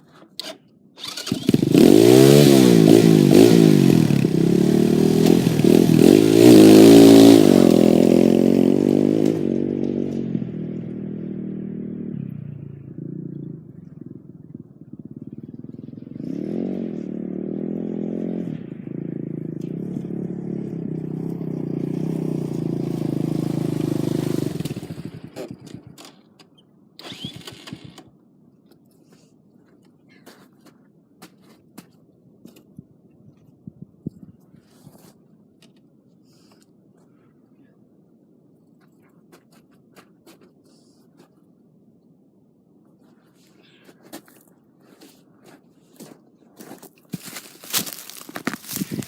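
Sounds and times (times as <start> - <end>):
dirt bike engine revving: 1.0 - 12.2, 15.1 - 26.0, 47.2 - 49.0.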